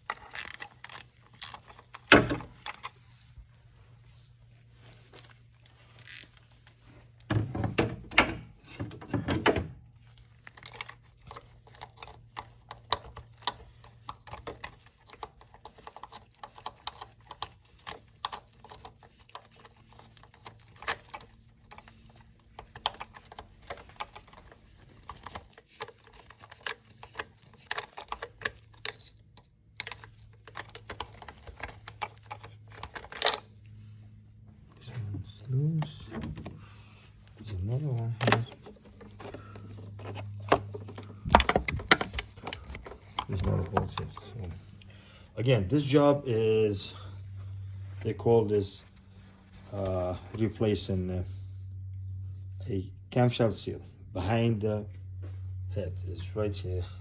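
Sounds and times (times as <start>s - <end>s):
metal clinking and clunking: 0.0s - 3.0s
faint steady hum: 0.0s - 57.0s.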